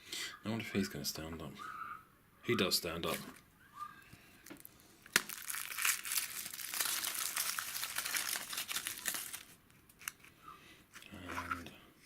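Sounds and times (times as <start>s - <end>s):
wrapper tearing and crackling: 4.5s - 10.3s.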